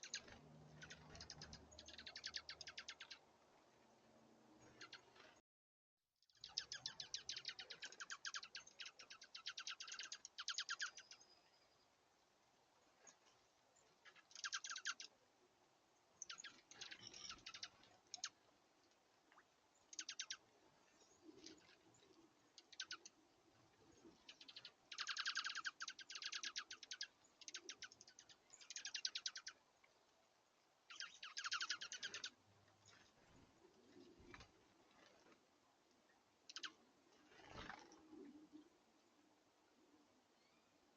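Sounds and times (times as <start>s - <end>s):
songbirds calling in fast trills: 0.0s - 3.3s, 4.6s - 5.4s, 6.3s - 11.6s, 14.0s - 15.1s, 16.2s - 18.4s, 19.8s - 29.6s, 30.9s - 34.4s, 36.5s - 38.2s.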